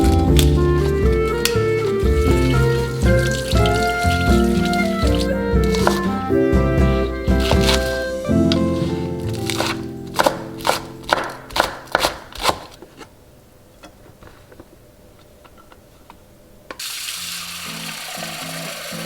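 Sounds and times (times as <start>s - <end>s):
soft background music: 0.0s - 11.4s.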